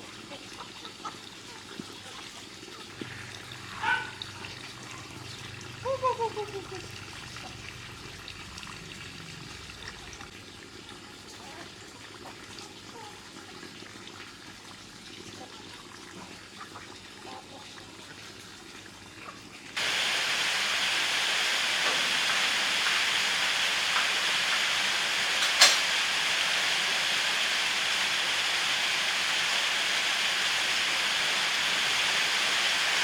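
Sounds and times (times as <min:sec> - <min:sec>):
water rushing: 0:02.9 - 0:10.3, 0:19.8 - 0:33.0.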